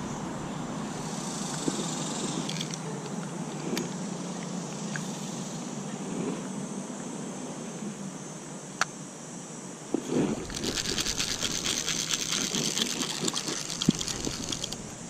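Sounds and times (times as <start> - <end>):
fishing reel whirring: 10.3 - 15.0.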